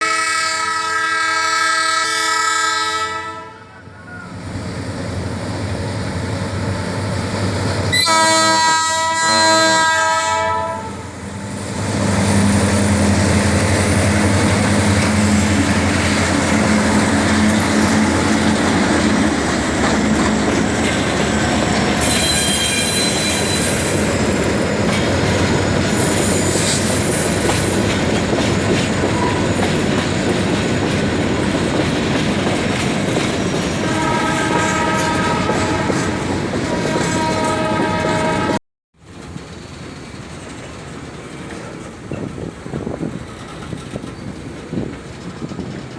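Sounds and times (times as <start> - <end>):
locomotive air horn: 0.0 - 3.8, 7.9 - 11.1, 21.9 - 23.8, 33.8 - 38.6
diesel locomotive engine drone: 3.3 - 45.9
high wheel squeals: 20.1 - 25.0, 25.7 - 27.7.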